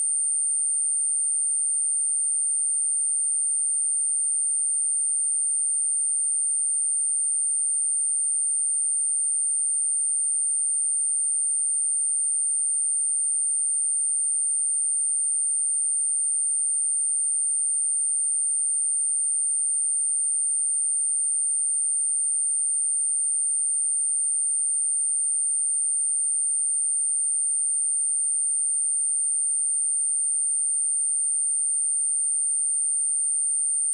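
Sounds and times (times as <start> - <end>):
high sine-wave test tone: 27.6 - 33.9.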